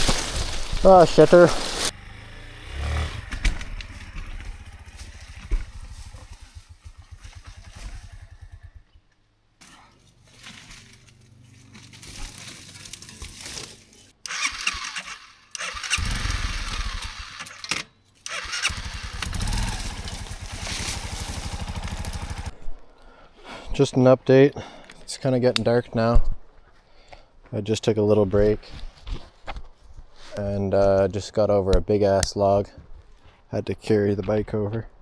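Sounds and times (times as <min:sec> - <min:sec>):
dirt bike engine idling and revving: 0:00.0 - 0:22.7.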